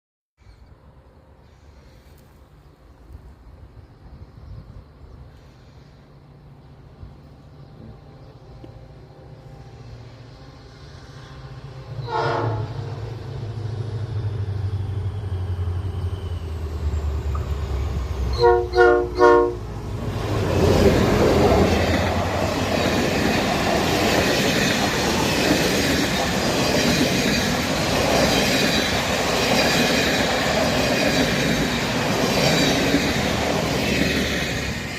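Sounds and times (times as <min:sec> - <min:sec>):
locomotive engine rumble: 0:01.2 - 0:34.9
train horn blasts: 0:11.9 - 0:13.0, 0:18.3 - 0:19.8
train wheels clacking on rails: 0:20.1 - 0:34.9.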